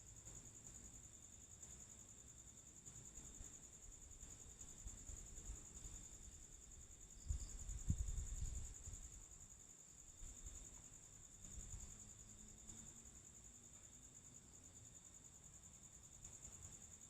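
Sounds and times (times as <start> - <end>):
crickets chirping: 0.0 - 17.0
low rumble on microphone: 7.2 - 9.2.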